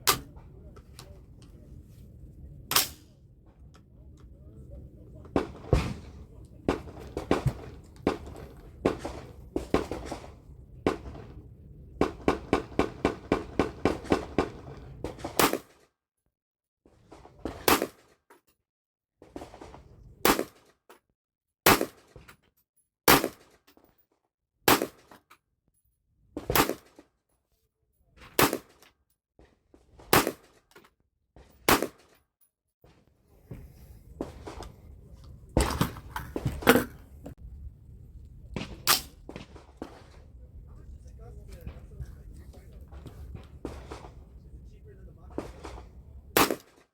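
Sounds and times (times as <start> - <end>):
low rumble: 33.7 - 46.4.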